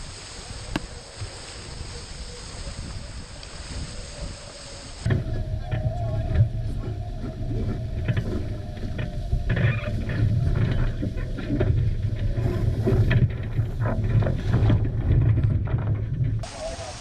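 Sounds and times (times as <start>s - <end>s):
wind buffeting microphone: 0.0s - 16.8s
water rushing past hulls: 0.0s - 17.0s.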